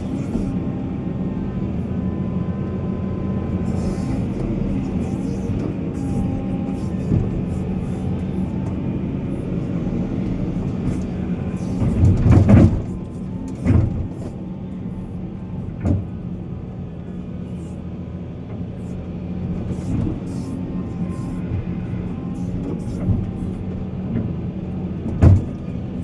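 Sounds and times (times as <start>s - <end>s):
diesel machine engine running: 0.0s - 26.0s
metal clunks and knocks: 10.2s - 14.4s, 15.6s - 16.3s, 25.0s - 26.0s.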